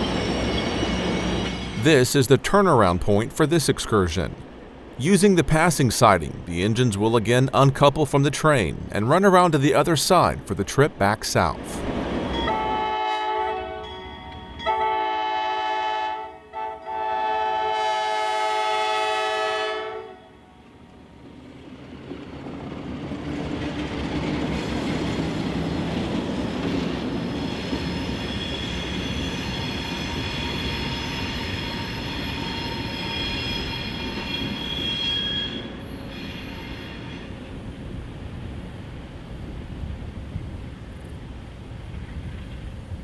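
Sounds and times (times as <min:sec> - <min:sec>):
locomotive horn chord: 0:12.5 - 0:20.6
high-pitched wheel squeal: 0:27.2 - 0:37.3.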